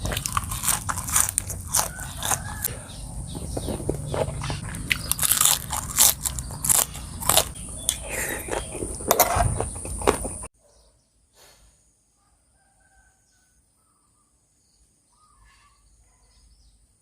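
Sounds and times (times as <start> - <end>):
crunchy chewing of food: 0.0 - 10.5.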